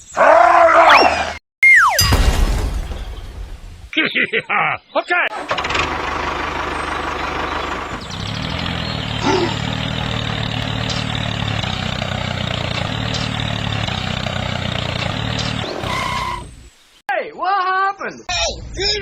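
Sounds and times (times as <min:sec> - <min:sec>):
tractor motor running: 0:05.3 - 0:16.7.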